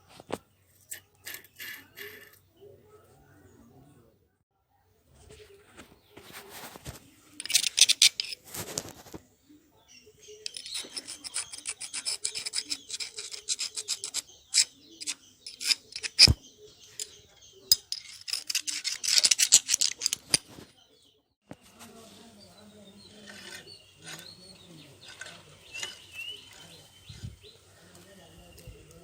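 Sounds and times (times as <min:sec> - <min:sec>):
rust scrubbed off metal: 0:00.8 - 0:02.5, 0:06.6 - 0:08.9, 0:10.4 - 0:17.1, 0:17.7 - 0:20.7, 0:23.0 - 0:27.3.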